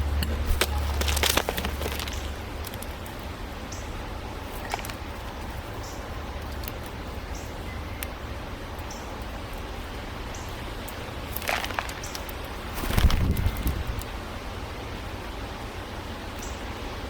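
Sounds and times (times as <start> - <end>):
small birds chirping: 0.0 - 14.1, 16.0 - 16.8
outdoor background hiss: 0.0 - 17.0
wings fluttering: 0.4 - 3.2, 11.3 - 14.1.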